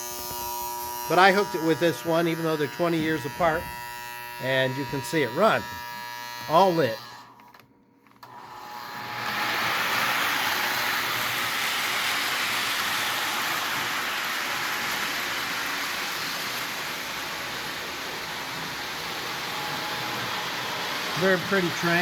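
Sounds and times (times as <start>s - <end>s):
model train whirring: 8.2s - 22.0s.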